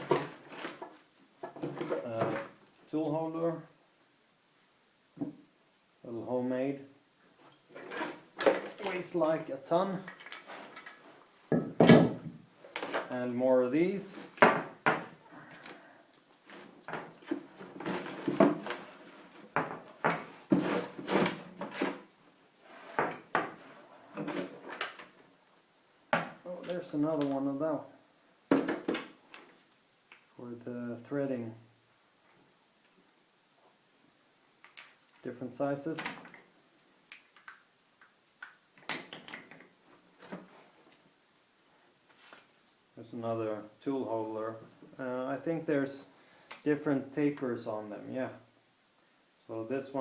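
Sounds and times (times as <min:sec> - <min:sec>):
metal knocks and clinks: 0:24.2 - 0:25.2, 0:38.8 - 0:39.6
metal parts clanking: 0:24.2 - 0:25.2.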